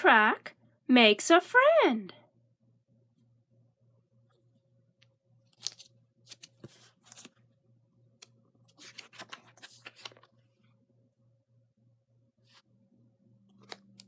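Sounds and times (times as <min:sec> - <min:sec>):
book pages rustling: 0:05.5 - 0:07.5, 0:08.2 - 0:10.6, 0:13.6 - 0:14.0.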